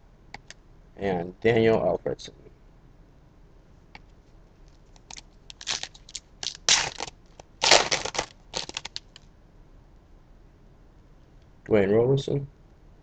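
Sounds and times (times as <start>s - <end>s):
trading card packaging crinkling: 4.7s - 9.2s.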